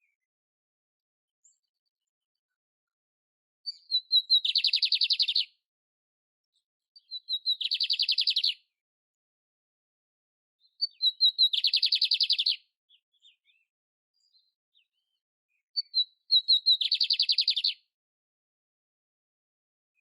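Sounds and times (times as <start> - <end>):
canary singing trill: 3.7 - 5.6, 7.0 - 8.7, 10.6 - 13.7, 15.8 - 17.9.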